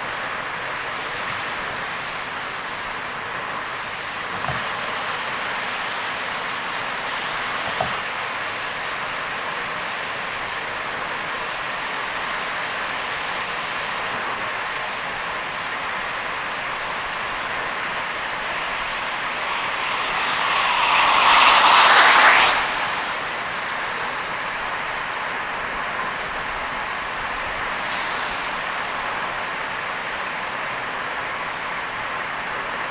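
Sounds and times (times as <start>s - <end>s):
heavy rain hiss: 0.0s - 32.9s
rush of water: 0.0s - 32.9s
tyres on wet road: 0.0s - 32.9s.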